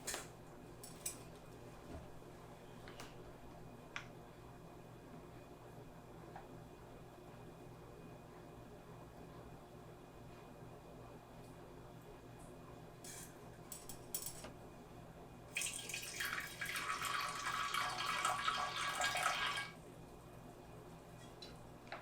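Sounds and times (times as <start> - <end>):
kitchen tap running into sink: 15.5 - 19.8.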